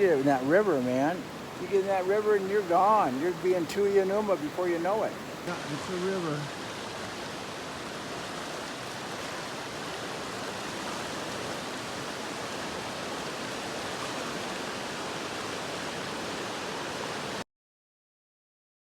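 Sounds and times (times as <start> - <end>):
river floodwater rushing: 0.0 - 17.4.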